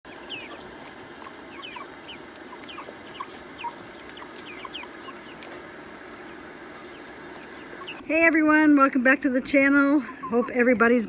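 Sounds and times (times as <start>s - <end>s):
chicks peeping: 0.0s - 8.0s
steady low hum: 0.1s - 8.2s.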